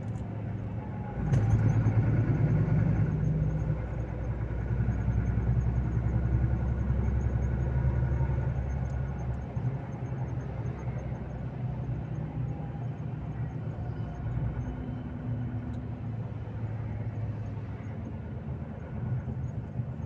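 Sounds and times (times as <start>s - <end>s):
diesel truck engine humming: 0.0s - 20.0s.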